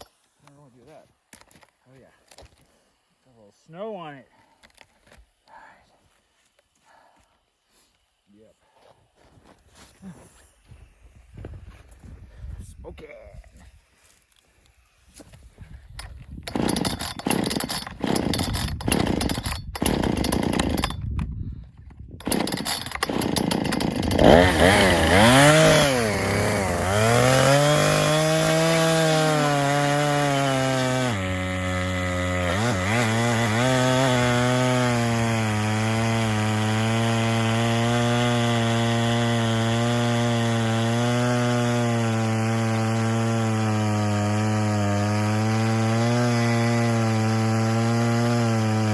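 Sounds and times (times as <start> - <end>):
chainsaw engine revving: 16.0 - 21.0, 22.2 - 48.9.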